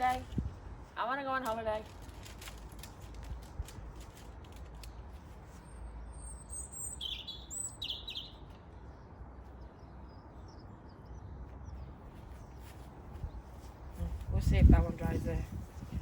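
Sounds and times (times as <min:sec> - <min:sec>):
wind rumble on microphone: 0:00.0 - 0:04.6, 0:12.0 - 0:16.0
songbird chirping: 0:04.8 - 0:14.4.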